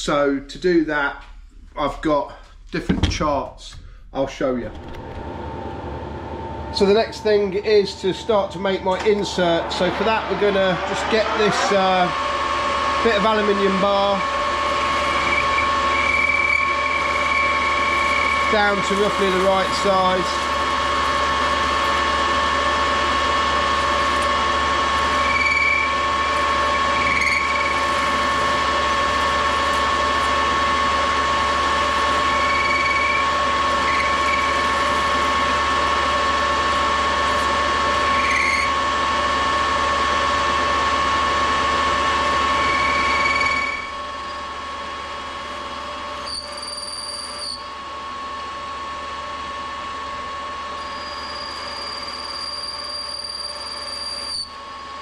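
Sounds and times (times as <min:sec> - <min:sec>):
metal lathe whine: 0:04.8 - 0:55.0
short lathe squeals: 0:13.1 - 0:20.4, 0:22.6 - 0:28.4, 0:31.8 - 0:35.5, 0:37.9 - 0:38.8, 0:42.4 - 0:44.4, 0:46.2 - 0:47.7, 0:50.7 - 0:54.6.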